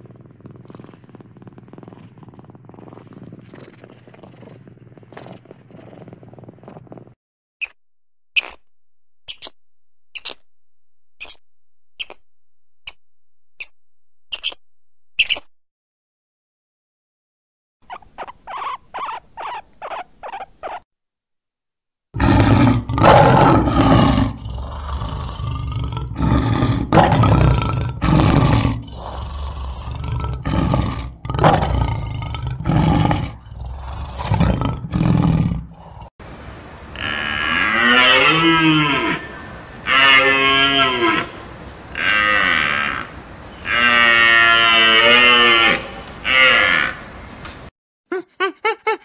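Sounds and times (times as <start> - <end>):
stag bellowing: 22.2 - 35.6
lion roaring: 22.2 - 36.1.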